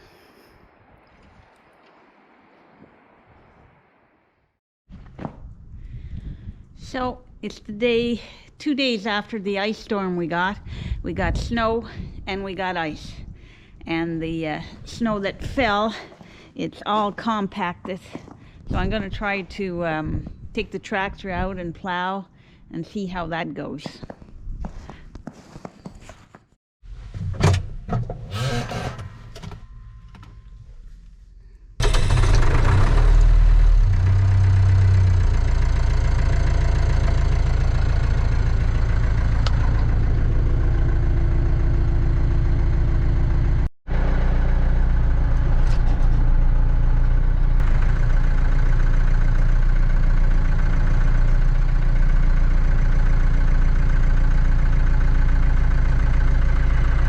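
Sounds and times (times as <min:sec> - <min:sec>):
tractor diesel engine starting: 0:27.0 - 0:30.0, 0:31.8 - 0:57.0.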